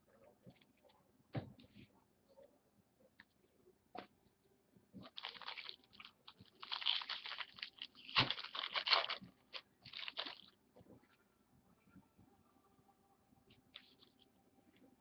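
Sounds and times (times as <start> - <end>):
foil wrapper crinkling and tearing: 5.0 - 10.5.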